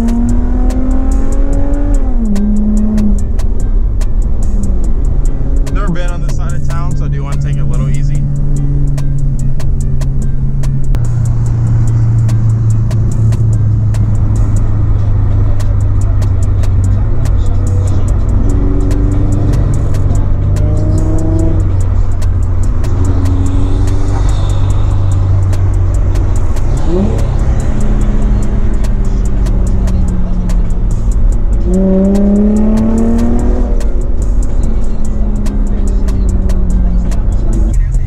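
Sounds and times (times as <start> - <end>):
car engine droning in cabin: 0.0 - 38.0
faint music playing: 0.0 - 38.0.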